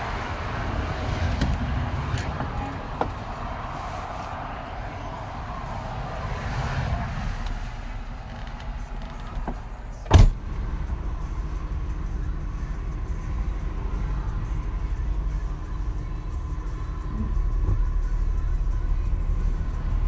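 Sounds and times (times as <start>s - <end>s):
tyre and wind rumble: 0.0s - 11.3s
diesel engine running: 0.0s - 20.0s.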